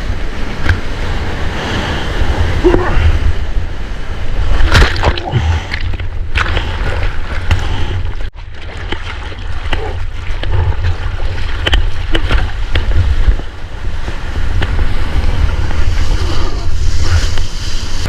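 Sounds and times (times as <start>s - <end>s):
water splashing and lapping: 0.0s - 18.0s
wind buffeting microphone: 9.4s - 18.0s.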